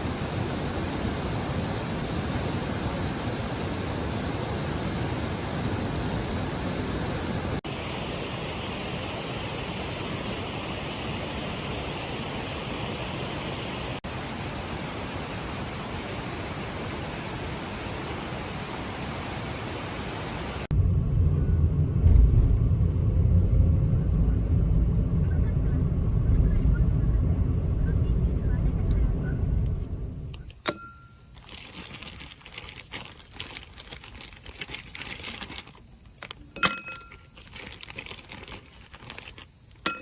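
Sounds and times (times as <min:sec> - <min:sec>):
low rumble: 0:20.7 - 0:30.4.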